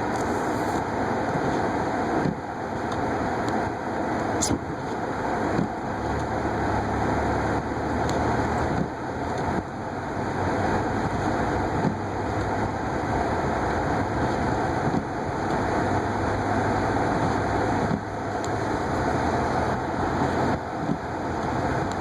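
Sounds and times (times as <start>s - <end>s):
car engine hum: 0.0s - 22.0s.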